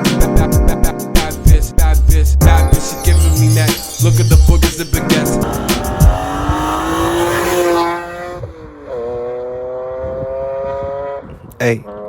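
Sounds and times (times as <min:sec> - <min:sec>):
car engine revving: 0:05.2 - 0:11.0.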